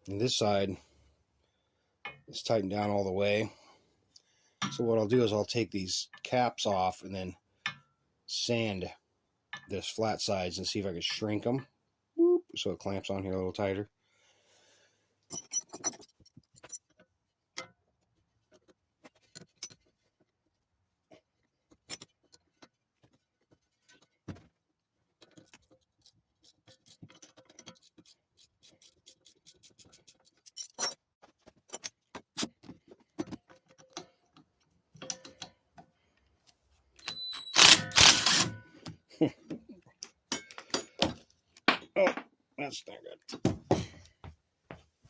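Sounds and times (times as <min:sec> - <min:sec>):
metal tools clicking and clinking: 0:15.3 - 0:17.0, 0:25.2 - 0:31.1, 0:40.0 - 0:41.0.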